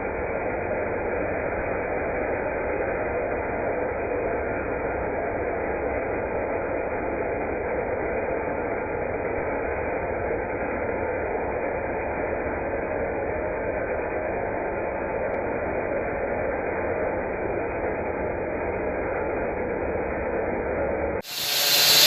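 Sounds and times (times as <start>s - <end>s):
power saw cutting concrete: 21.2s - 22.0s.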